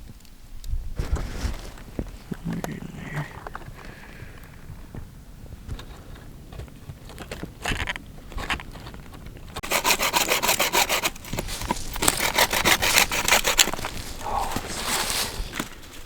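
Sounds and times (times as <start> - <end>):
hand saw cutting wood: 9.6 - 15.8.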